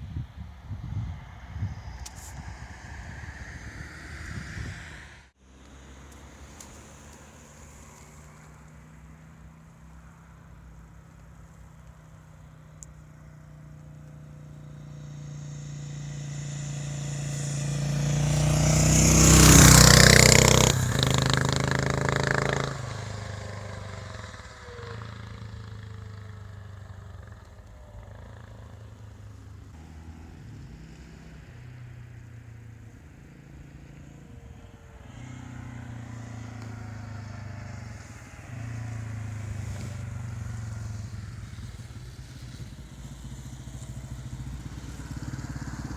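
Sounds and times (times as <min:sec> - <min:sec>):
motorcycle engine running: 0:06.0 - 0:45.9.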